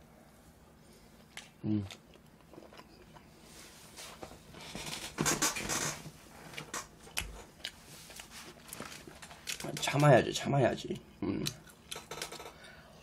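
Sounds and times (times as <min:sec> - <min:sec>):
person chewing: 0:01.7 - 0:03.3, 0:06.5 - 0:09.6.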